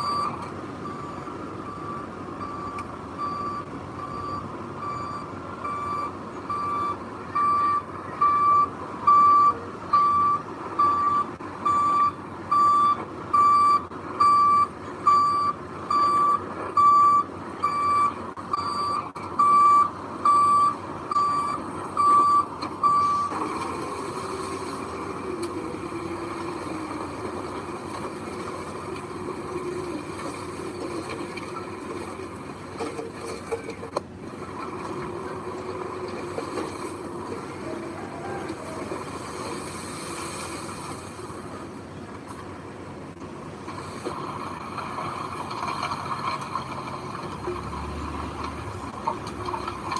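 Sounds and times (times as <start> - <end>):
reversing alarm beeping: 0.0 - 24.5.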